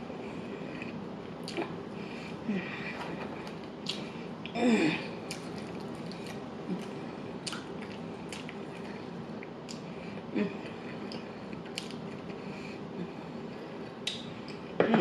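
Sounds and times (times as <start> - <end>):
chewing food: 5.2 - 9.8
wet mouth clicks and smacks: 5.3 - 8.6, 11.1 - 12.0, 14.0 - 14.6.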